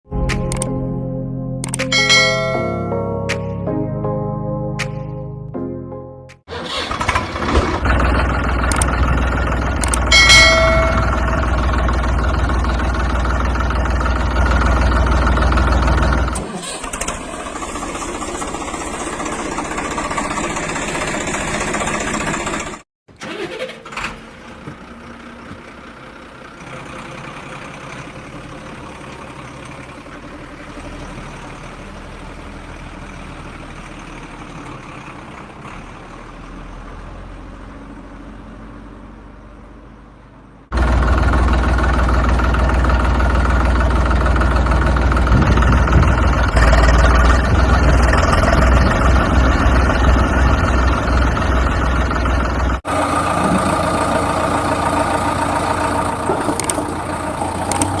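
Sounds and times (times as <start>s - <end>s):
loud deep engine sound: 0.1s - 3.2s, 6.5s - 58.0s
vehicle engine running: 6.6s - 22.8s, 24.2s - 58.0s.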